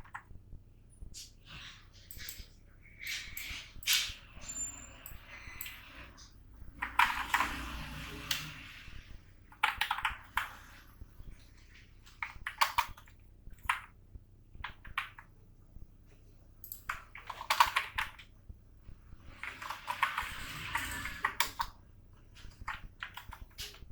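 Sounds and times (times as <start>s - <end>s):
computer keyboard typing: 0.0s - 0.3s, 6.7s - 8.7s, 9.5s - 10.8s, 12.0s - 14.0s, 14.6s - 15.3s, 16.6s - 18.4s, 19.2s - 21.8s, 22.4s - 23.9s.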